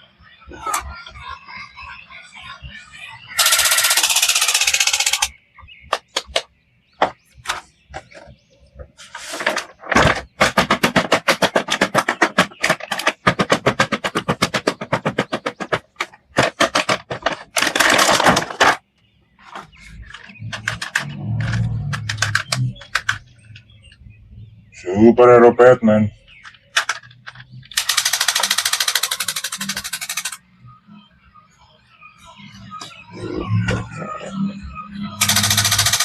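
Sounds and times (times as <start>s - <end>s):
plastic toys clicking: 3.4s - 5.3s, 5.9s - 6.5s, 9.4s - 18.8s, 19.4s - 23.7s, 26.4s - 30.4s, 35.2s - 36.0s.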